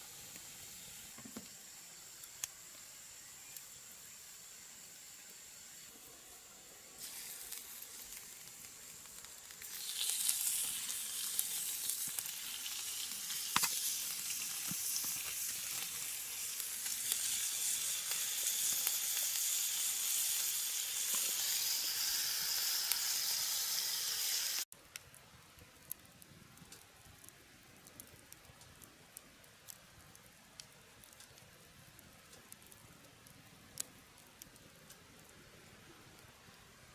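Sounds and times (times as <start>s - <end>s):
food sizzling in a pan: 0.0s - 24.7s.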